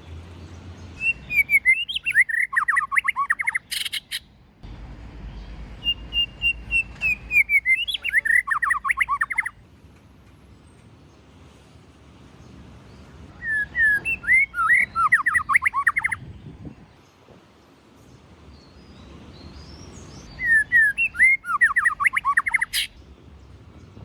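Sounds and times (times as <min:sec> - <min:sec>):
bird singing whistled phrases: 0:01.0 - 0:04.2, 0:05.8 - 0:09.6, 0:13.4 - 0:16.2, 0:20.3 - 0:23.0.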